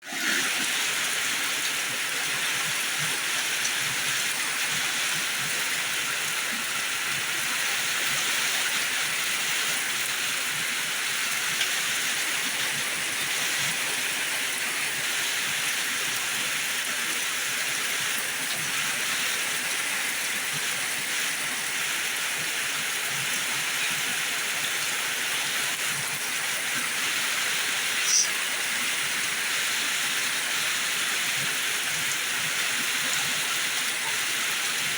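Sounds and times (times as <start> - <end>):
heavy rain pouring: 0.1 - 34.9.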